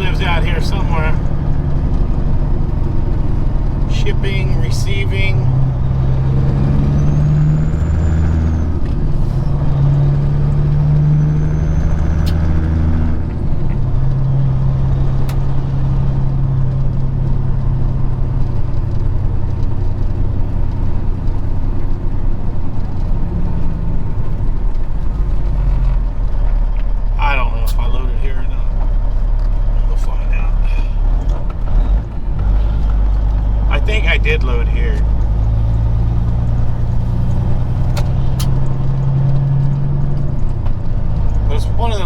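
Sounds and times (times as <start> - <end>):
diesel truck engine running: 0.0 - 42.0
sharp clicks: 37.2 - 41.4.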